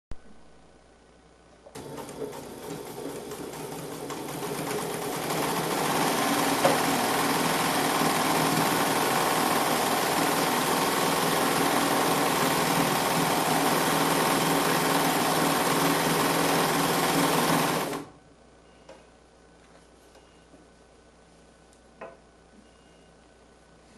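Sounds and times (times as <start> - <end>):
sewing machine running: 1.7 - 18.1.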